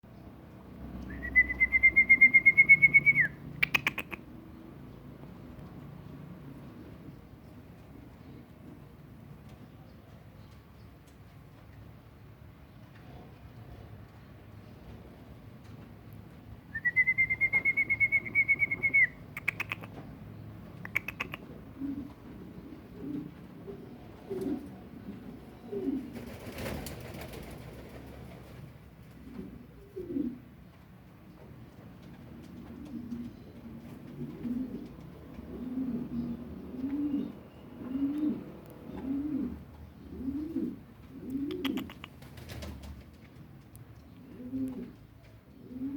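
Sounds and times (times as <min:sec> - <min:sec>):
bird trilling: 0:01.1 - 0:04.2, 0:16.8 - 0:19.9, 0:20.9 - 0:21.4
pigeons cooing: 0:16.8 - 0:20.0, 0:20.9 - 0:30.5, 0:32.4 - 0:43.0, 0:44.2 - 0:45.9.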